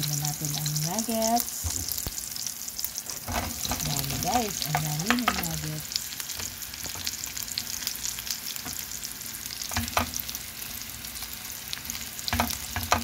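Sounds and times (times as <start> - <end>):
food sizzling in a pan: 0.0 - 13.0
wooden spatula scraping a pan: 3.0 - 5.6.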